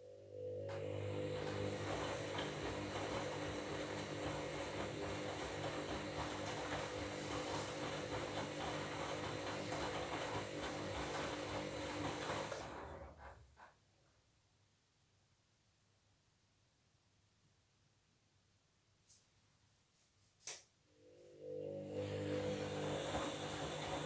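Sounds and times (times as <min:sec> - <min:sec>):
washing machine drum whine: 0:00.0 - 0:13.6, 0:21.0 - 0:24.0.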